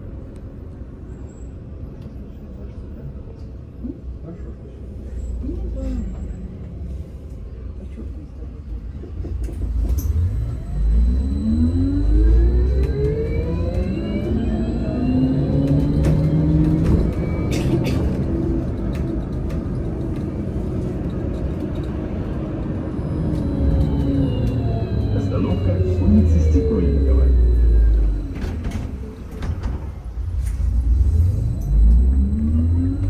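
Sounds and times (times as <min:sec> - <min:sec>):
low rumble of ride: 0:00.0 - 0:33.0
electric drive whining: 0:10.1 - 0:17.5, 0:22.9 - 0:29.0.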